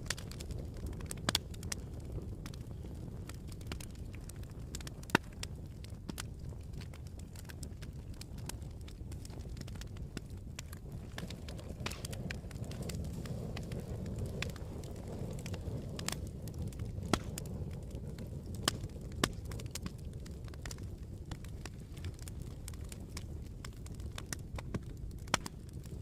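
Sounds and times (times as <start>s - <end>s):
campfire crackling: 0.0s - 26.0s
fire popping and snapping: 0.0s - 26.0s.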